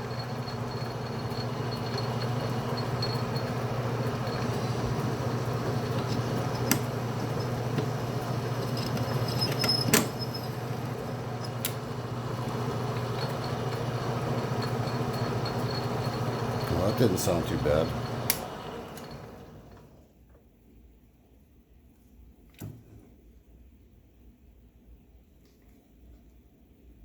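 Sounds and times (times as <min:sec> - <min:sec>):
metal lathe cutting: 0:00.0 - 0:19.9.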